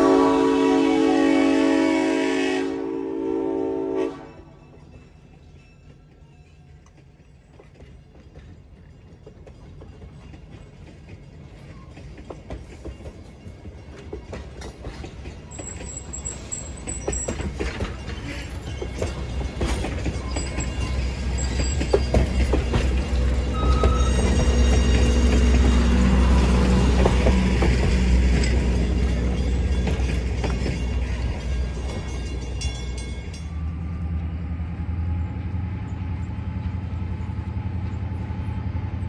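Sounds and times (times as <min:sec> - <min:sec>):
train engine hum: 0:00.0 - 0:39.0
train rumble: 0:00.0 - 0:39.0
wheels rattling clicks: 0:06.6 - 0:26.0
thin high wheel squeal: 0:15.5 - 0:26.5.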